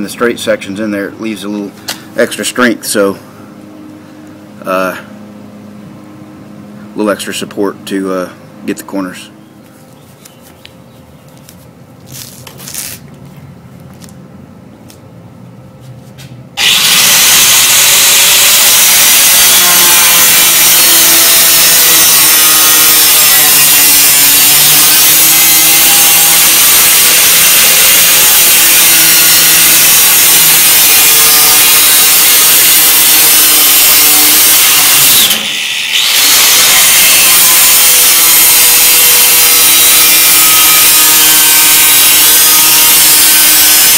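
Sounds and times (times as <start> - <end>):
power tool cutting sheet metal: 16.6 - 43.9.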